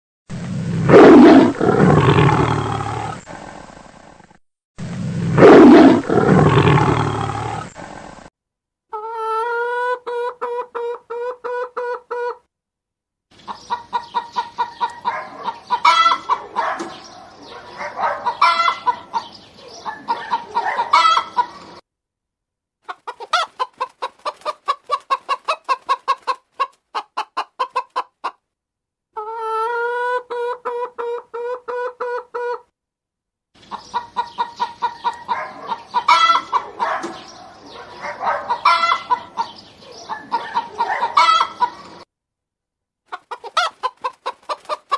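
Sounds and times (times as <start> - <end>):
hens clucking: 8.9 - 12.4, 13.4 - 21.8, 22.8 - 28.4, 29.2 - 32.6, 33.6 - 42.0, 43.1 - 44.9.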